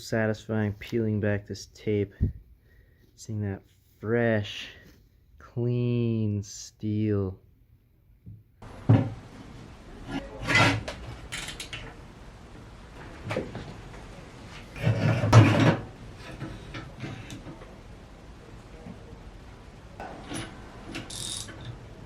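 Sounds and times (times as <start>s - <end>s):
objects scraping and knocking: 8.6s - 18.2s, 20.0s - 22.0s.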